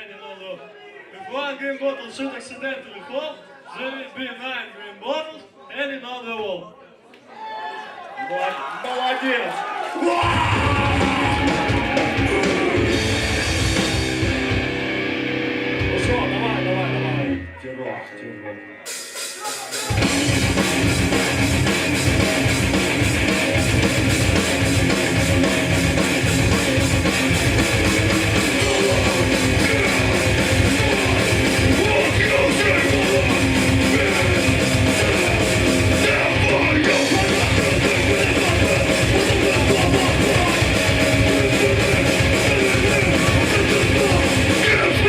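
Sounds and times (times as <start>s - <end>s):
pounding drum kit: 10.0s - 17.0s, 18.9s - 45.0s
distorted electric guitar: 10.2s - 45.0s.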